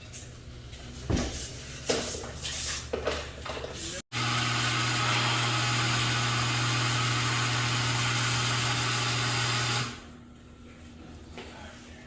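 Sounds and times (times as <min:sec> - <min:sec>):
garage door opener motor humming: 0:04.1 - 0:10.1.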